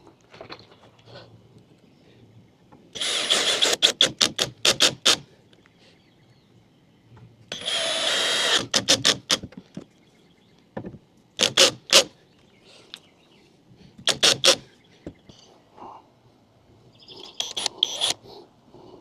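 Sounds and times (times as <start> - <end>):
power drill driving a screw: 3.0 - 5.2, 7.5 - 9.5, 11.4 - 12.1, 14.1 - 14.7, 17.3 - 18.2.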